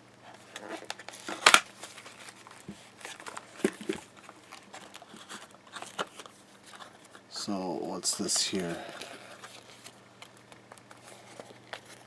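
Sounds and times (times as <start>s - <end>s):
cardboard packaging crinkling: 0.3s - 7.3s, 8.0s - 12.0s.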